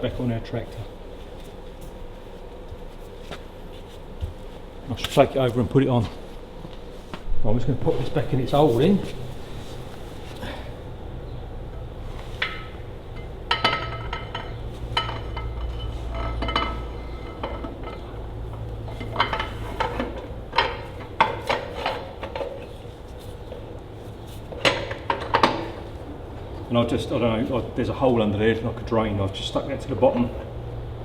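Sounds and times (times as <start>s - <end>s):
steady low hum: 0.0s - 31.0s
metal tools clinking and knocking: 12.4s - 22.5s.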